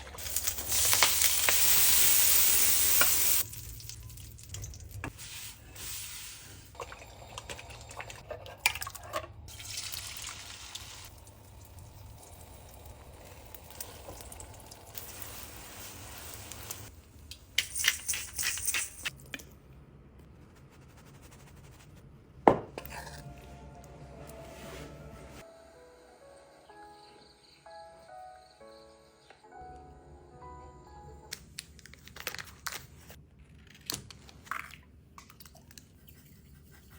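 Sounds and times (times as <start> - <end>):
liquid pouring and dripping: 2.9 - 5.1, 6.7 - 17.4.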